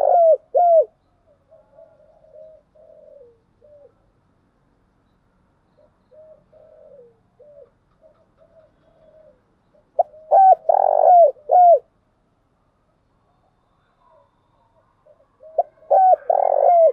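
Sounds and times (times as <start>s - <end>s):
dove cooing: 0.0s - 4.1s, 5.8s - 11.9s, 15.0s - 16.9s.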